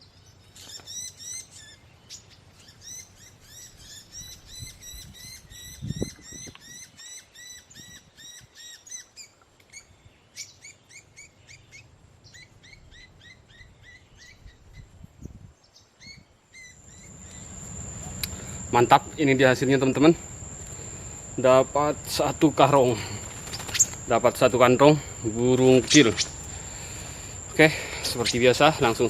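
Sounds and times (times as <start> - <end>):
small birds chirping: 0.0 - 15.0, 15.6 - 29.0.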